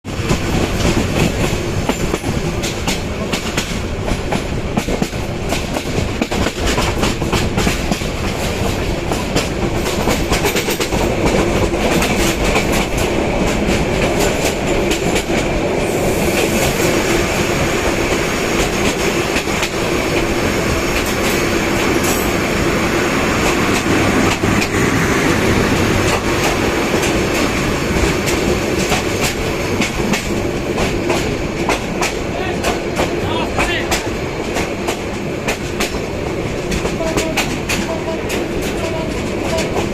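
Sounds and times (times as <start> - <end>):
wheels clattering over rail joints: 23.4 - 39.9.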